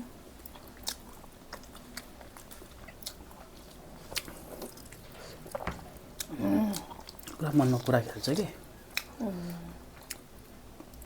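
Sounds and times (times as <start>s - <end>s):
food being chewed: 0.4s - 11.0s.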